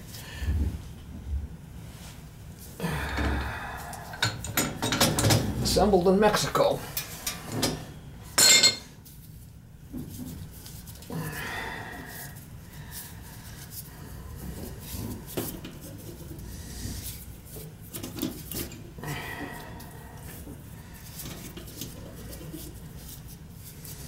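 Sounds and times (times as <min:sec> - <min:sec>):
metal tools clinking: 0:08.4 - 0:08.9.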